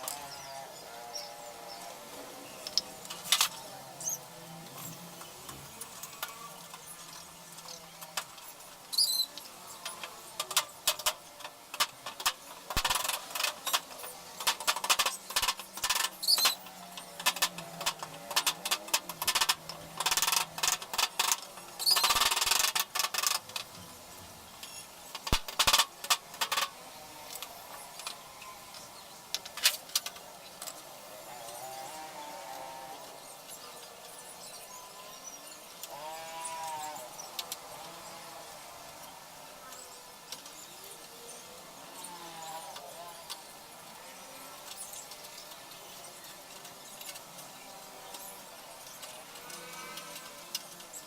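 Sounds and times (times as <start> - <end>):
short squeaks: 8.9 - 9.4
clicking and knocking of parts: 9.4 - 23.9, 24.6 - 26.7.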